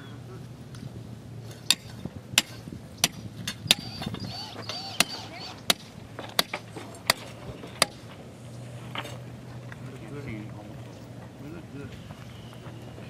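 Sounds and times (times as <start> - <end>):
hammer driving stakes: 1.5 - 8.2.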